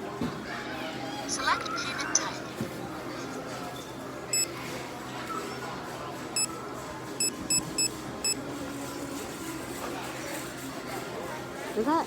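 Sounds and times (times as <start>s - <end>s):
payment terminal beeping: 7.2s - 8.4s.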